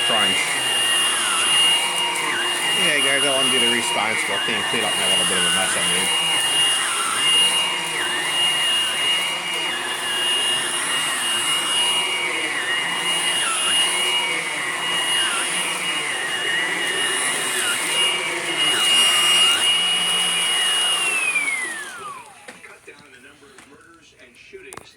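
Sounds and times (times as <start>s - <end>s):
cordless vacuum cleaner whining: 0.0s - 24.9s.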